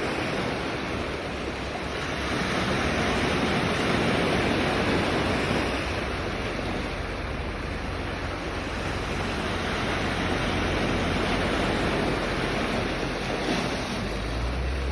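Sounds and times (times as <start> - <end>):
sea waves washing onto shore: 0.0 - 14.9.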